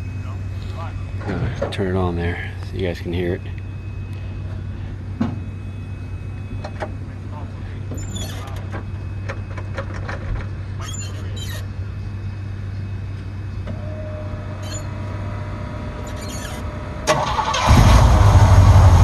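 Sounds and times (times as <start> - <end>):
truck engine cranking and running: 13.6 - 19.0.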